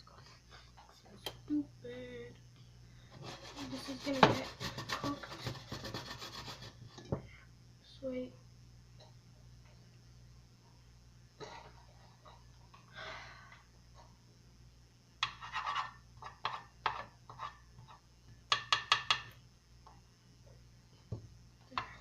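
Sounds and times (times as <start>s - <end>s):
faint low hum: 0.0s - 22.0s
utensil knocking on frying pan: 18.5s - 19.3s.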